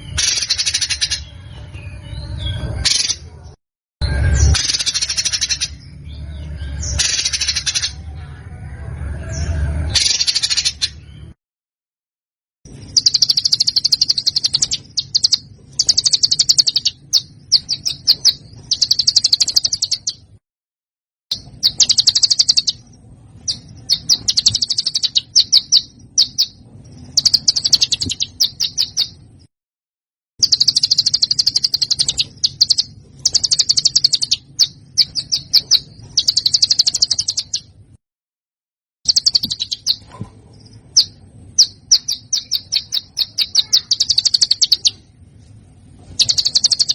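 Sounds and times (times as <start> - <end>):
songbird chattering trills: 12.8 - 20.3, 21.3 - 29.2, 30.4 - 37.7, 39.1 - 40.1, 40.7 - 45.1, 46.2 - 46.9.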